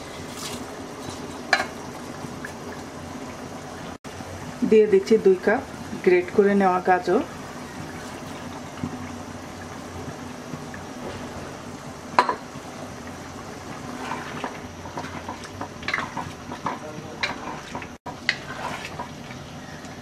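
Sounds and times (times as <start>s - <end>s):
spoon scraping a cooking pot: 14.0s - 19.1s.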